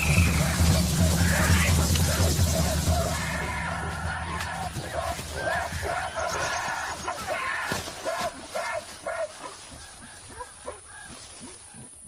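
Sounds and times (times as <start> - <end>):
gorillas screaming: 0.0 - 11.3.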